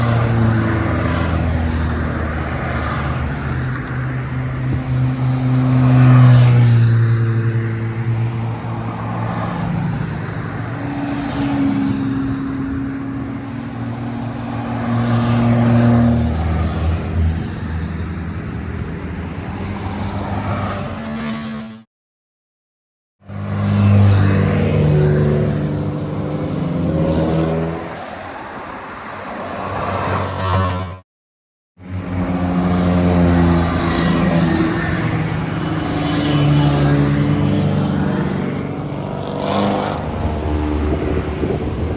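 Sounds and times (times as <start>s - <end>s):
car engines running: 23.3s - 30.8s, 31.9s - 41.9s.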